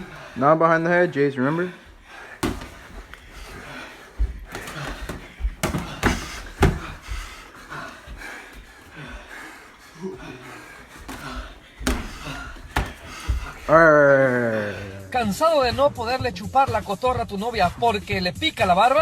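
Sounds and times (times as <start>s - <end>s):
punches landing: 0.0s - 15.0s
heavy panting: 0.0s - 15.2s.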